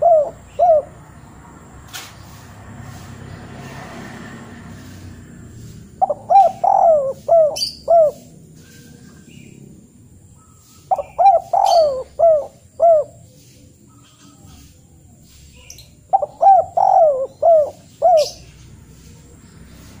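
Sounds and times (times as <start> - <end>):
bird calling: 0.0 - 1.3, 5.6 - 20.0.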